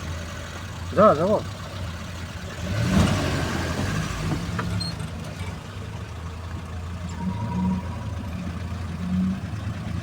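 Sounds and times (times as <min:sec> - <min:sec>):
vehicle engine humming: 0:00.0 - 0:10.0
faint thin high tone: 0:07.0 - 0:08.6.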